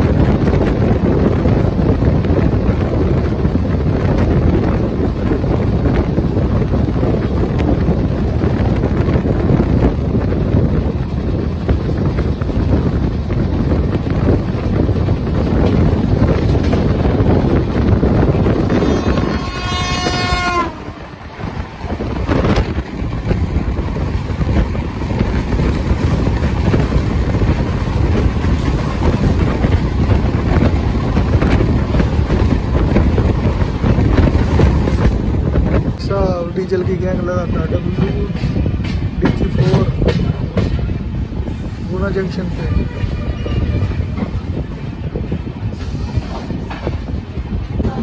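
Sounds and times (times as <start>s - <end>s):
train running at speed: 0.0s - 48.0s
wind on microphone: 0.0s - 48.0s
train horn: 18.7s - 21.2s, 42.6s - 44.2s.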